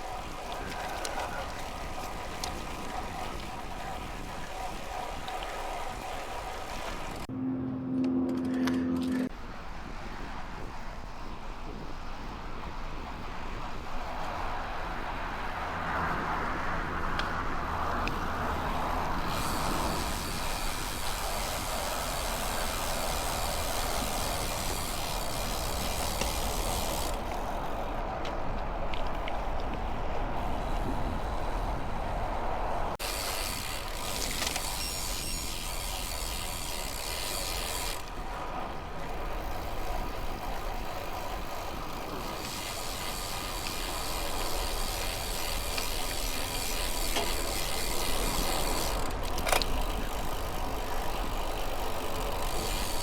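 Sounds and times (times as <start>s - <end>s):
bicycle freewheel ticking: 0.0s - 7.3s, 18.0s - 27.8s, 33.0s - 53.0s
wind and road noise: 0.0s - 53.0s.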